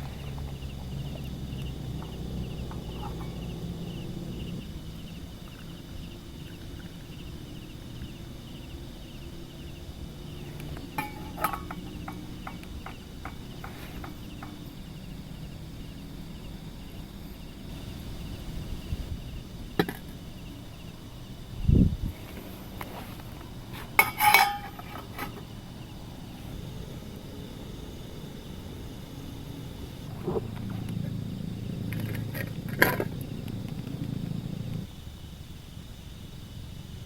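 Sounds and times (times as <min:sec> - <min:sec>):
insects chirping: 0:00.0 - 0:37.0
low hum: 0:23.0 - 0:34.9.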